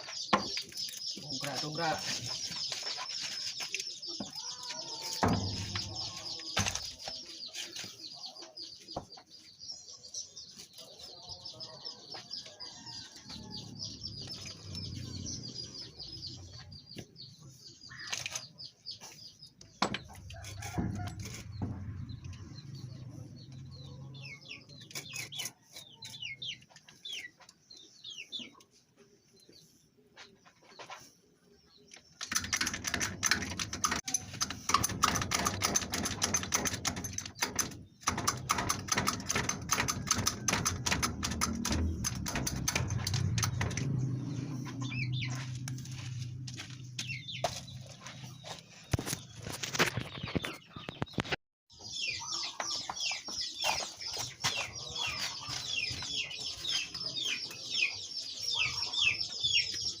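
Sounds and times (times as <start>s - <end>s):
birds chirping: 0.0s - 60.0s
low hum: 41.0s - 48.1s.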